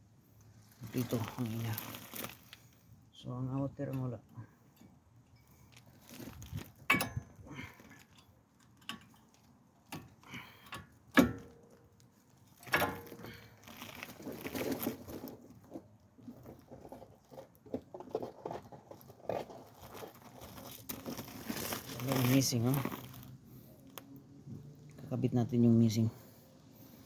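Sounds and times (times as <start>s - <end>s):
rustling and light clatter: 3.6s - 10.2s, 10.8s - 25.0s
metallic clicks and knocks: 6.8s - 7.4s.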